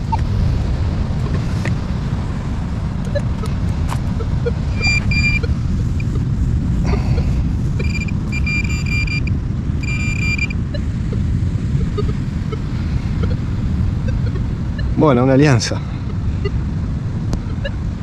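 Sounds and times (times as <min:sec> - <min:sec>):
steady low rumble: 0:00.0 - 0:18.0
metal detector beeps: 0:03.1 - 0:06.2, 0:06.9 - 0:15.0, 0:17.4 - 0:17.7.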